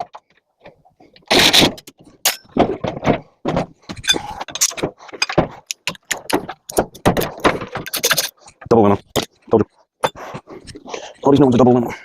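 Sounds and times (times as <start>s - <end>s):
sheet metal clanks and knocks: 1.7s - 8.8s.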